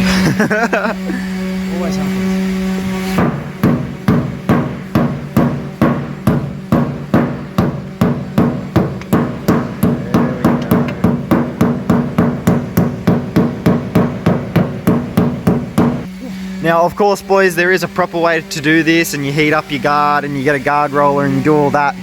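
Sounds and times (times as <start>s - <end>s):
mallet striking sheet metal: 3.1s - 16.1s.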